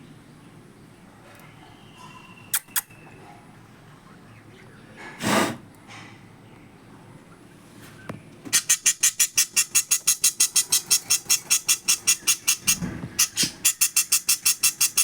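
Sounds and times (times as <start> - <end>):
parrot high-pitched calls: 8.5 - 15.0.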